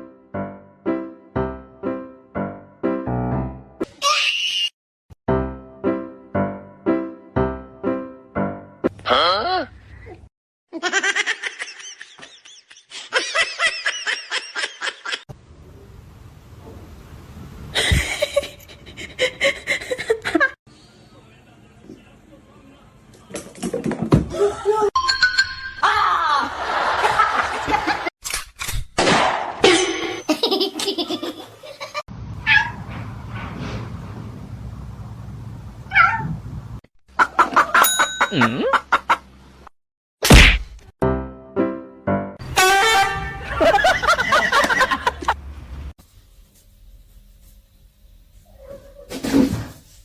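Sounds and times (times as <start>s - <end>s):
person laughing: 9.2s - 15.2s, 17.8s - 20.6s, 37.4s - 39.1s
cat meowing: 32.4s - 32.8s, 35.9s - 36.4s.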